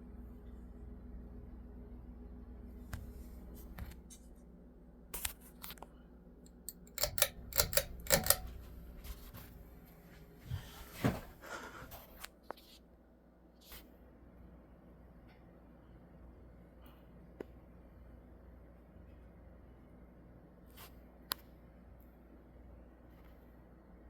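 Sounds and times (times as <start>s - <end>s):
ceiling fan motor humming: 0.0s - 12.3s
sharp clicks and rattles: 6.5s - 9.2s.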